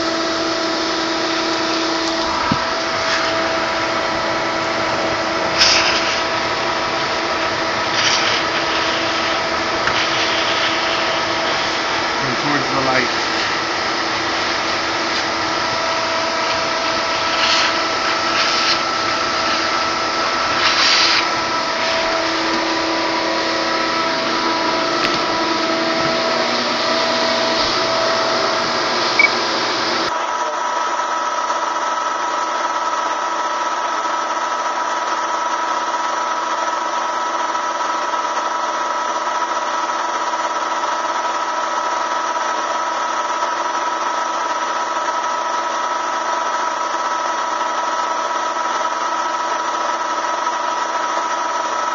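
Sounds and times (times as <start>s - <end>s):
vacuum motor whining: 0.0s - 30.6s
short hissy bursts: 1.3s - 30.1s.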